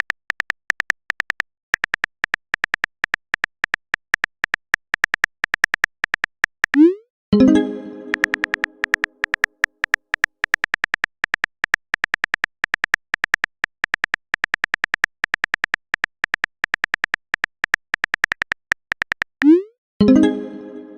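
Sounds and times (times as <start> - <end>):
phone keyboard key clicks: 0.0 - 6.8, 8.1 - 19.4
rising pop message sound: 6.7 - 9.4, 19.4 - 20.9.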